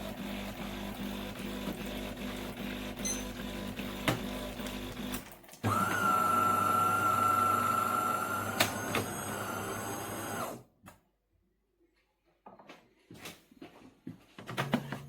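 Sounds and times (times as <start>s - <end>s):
coffee machine motor whining: 0.0s - 10.6s.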